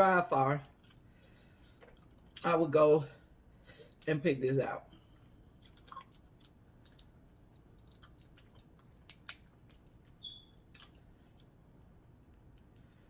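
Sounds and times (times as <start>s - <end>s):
person chewing: 0.6s - 2.4s, 5.0s - 13.0s
brief squeak: 10.2s - 10.6s.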